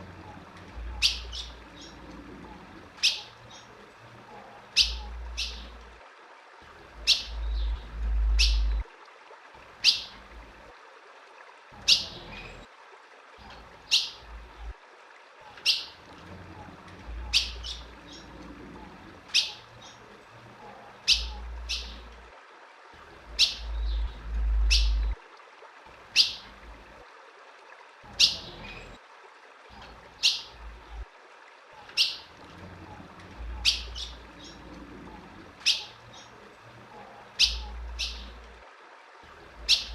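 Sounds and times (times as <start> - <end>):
bird chip calls: 0.9 - 2.0, 3.0 - 3.7, 4.7 - 5.7, 21.0 - 22.1, 26.1 - 26.4, 33.6 - 34.6, 35.6 - 36.3, 37.4 - 38.4.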